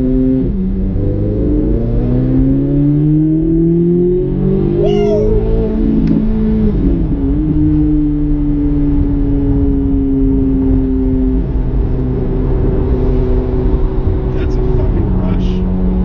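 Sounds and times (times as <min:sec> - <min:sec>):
sports car engine and exhaust: 0:00.0 - 0:16.0.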